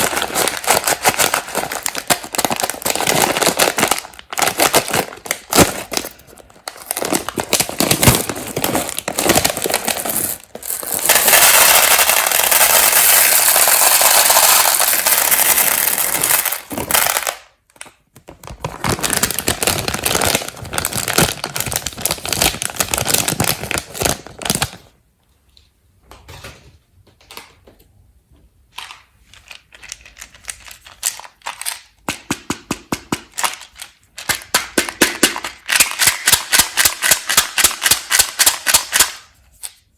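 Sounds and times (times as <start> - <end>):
candies clattering on hard surface: 0.0 - 17.5
plastic wrapper crinkling: 0.0 - 24.9.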